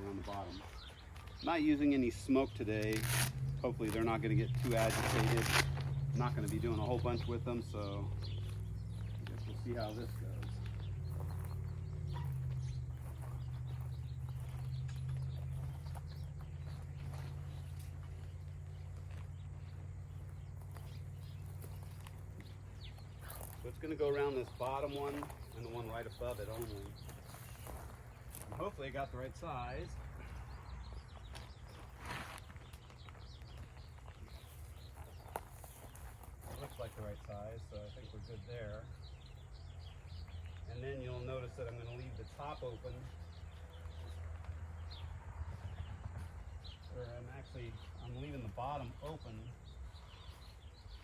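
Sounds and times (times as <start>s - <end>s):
faint bird chirps: 0.0s - 28.6s
low steady rumble: 2.2s - 31.6s.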